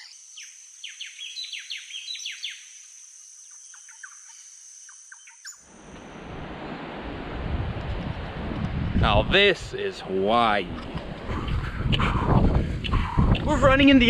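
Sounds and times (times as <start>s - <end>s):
wind noise on microphone: 5.8s - 14.0s
birds chirping: 10.5s - 14.0s.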